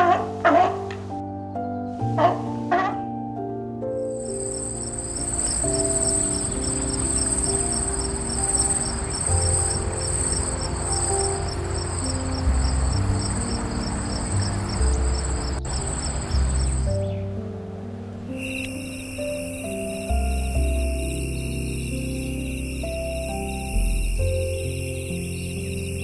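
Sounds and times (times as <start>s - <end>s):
soft background music: 0.0s - 26.0s
pulsing insect trill: 4.2s - 17.0s, 18.3s - 26.0s.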